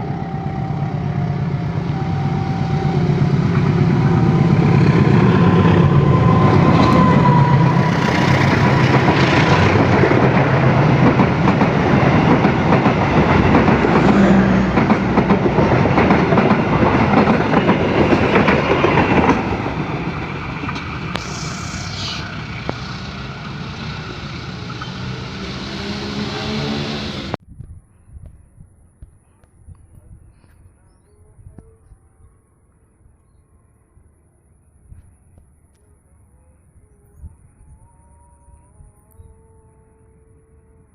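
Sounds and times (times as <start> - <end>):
train passing close by: 0.0 - 27.4.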